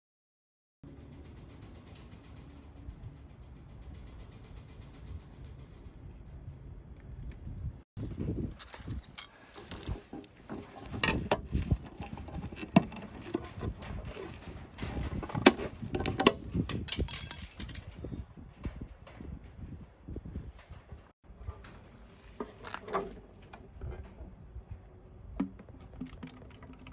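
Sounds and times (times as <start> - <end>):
metal tools clinking and knocking: 8.6 - 11.2, 14.2 - 18.0.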